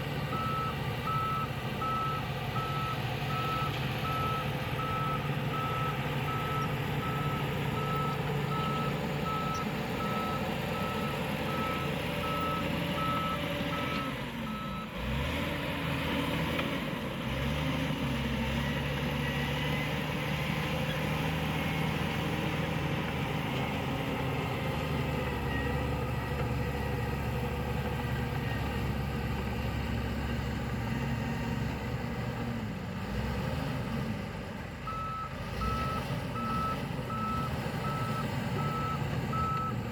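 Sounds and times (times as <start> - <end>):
diesel engine running: 0.0 - 39.9
reversing alarm beeping: 0.3 - 14.9, 34.9 - 39.8.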